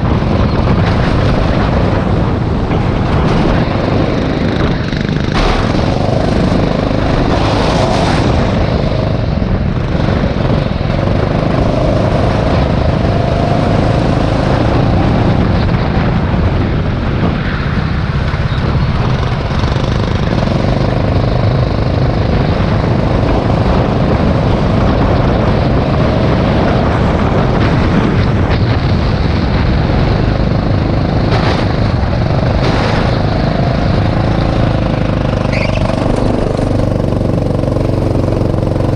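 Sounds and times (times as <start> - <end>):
go-kart engine running: 0.0 - 38.9
wind and road noise: 0.0 - 38.9.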